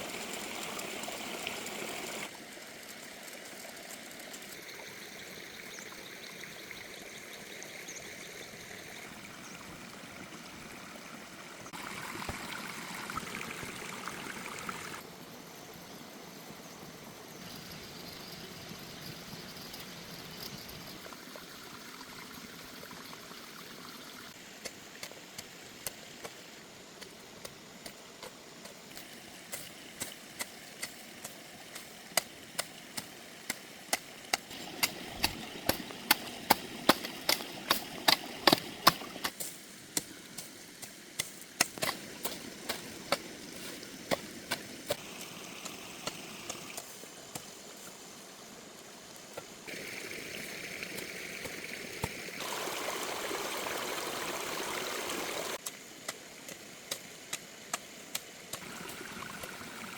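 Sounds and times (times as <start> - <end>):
running water: 0.0 - 15.1, 18.5 - 59.9.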